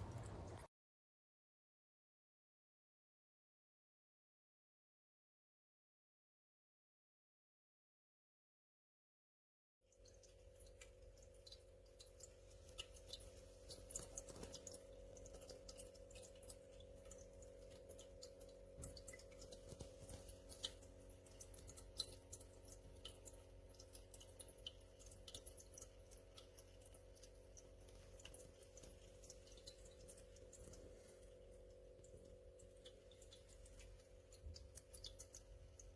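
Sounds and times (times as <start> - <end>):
electric pump hum: 0.0 - 0.7
water dripping into bowl: 0.0 - 0.7, 9.9 - 35.9.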